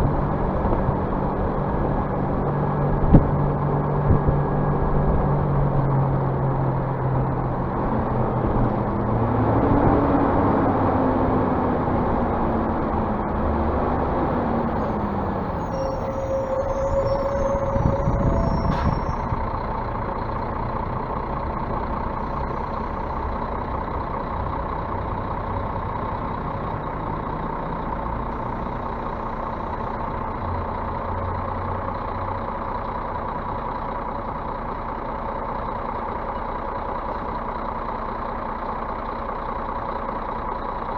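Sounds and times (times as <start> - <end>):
bus diesel engine running: 0.0 - 40.9
short steady tone: 14.7 - 19.7.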